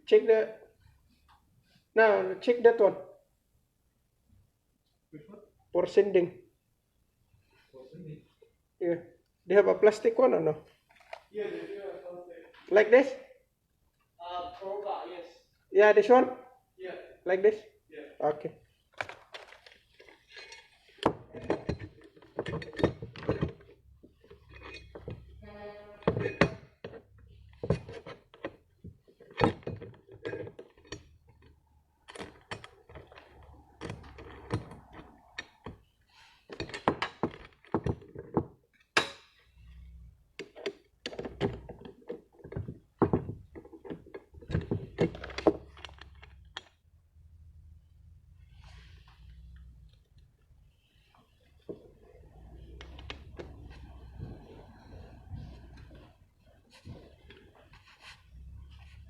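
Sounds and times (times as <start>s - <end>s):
hard objects knocking and clunking: 18.9s - 59.0s.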